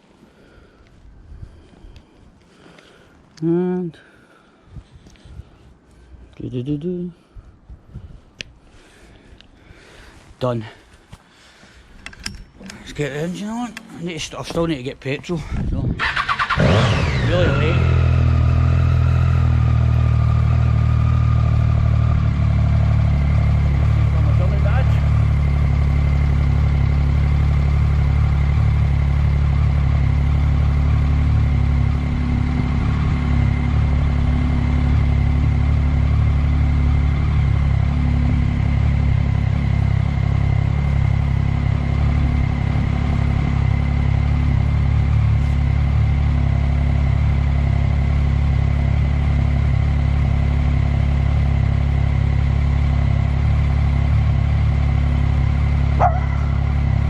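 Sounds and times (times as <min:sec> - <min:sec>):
motorcycle engine droning: 0:12.0 - 0:14.6, 0:15.9 - 0:57.0.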